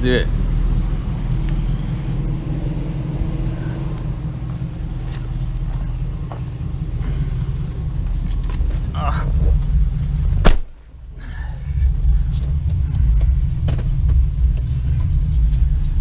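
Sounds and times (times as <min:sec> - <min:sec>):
pickup truck engine idling: 0:00.0 - 0:16.0.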